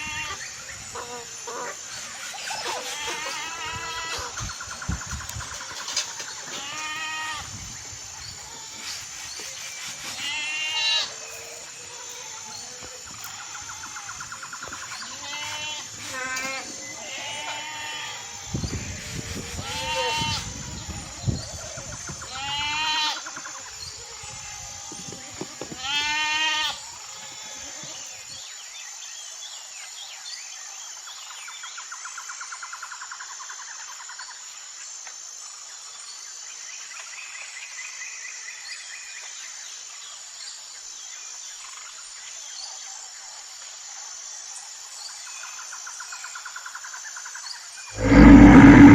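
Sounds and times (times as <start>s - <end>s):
livestock bleating: 25.8s - 26.8s
faint buzzing: 48.0s - 48.9s.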